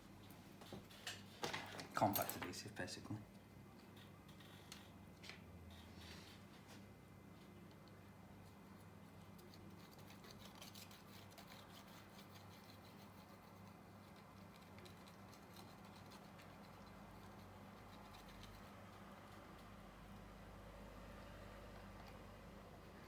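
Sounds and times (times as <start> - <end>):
low electrical hum: 0.0 - 23.0
adhesive scratching and ticking: 7.4 - 20.4.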